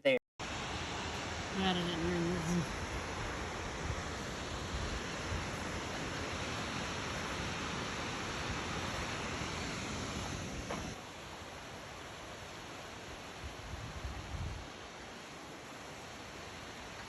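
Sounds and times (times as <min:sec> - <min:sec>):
waterfall rushing: 0:00.4 - 0:17.0.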